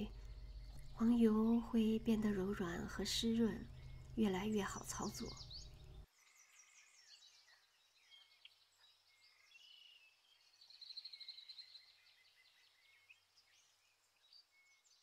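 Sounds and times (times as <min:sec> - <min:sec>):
bird trill: 0:00.0 - 0:07.0
birds chirping: 0:00.0 - 0:15.0.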